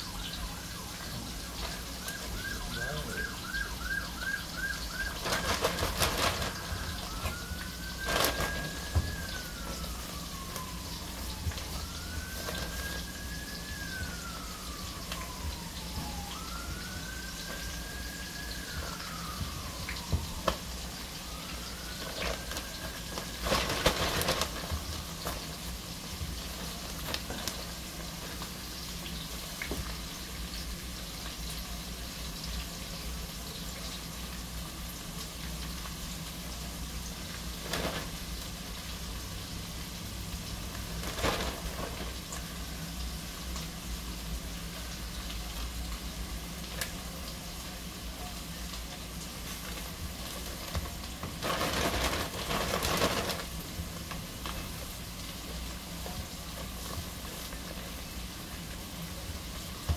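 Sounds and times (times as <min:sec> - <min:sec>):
food sizzling in oil: 0:00.0 - 0:59.9.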